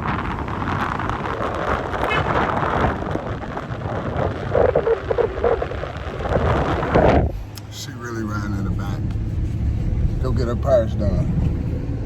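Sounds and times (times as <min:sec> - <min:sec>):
wind buffeting microphone: 0:00.0 - 0:07.8
truck road noise: 0:00.0 - 0:12.0.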